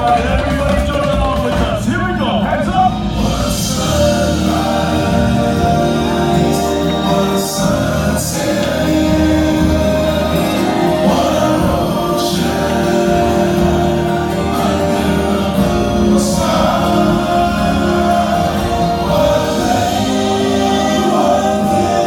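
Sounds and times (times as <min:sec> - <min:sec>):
choir singing held chords: 0:02.5 - 0:22.0.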